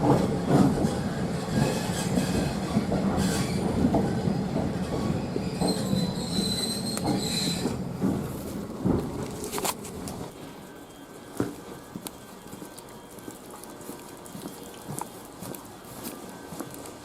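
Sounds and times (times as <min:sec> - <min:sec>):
train wheels rumbling on rail: 0:00.0 - 0:17.0
high wheel squeal: 0:05.2 - 0:07.8.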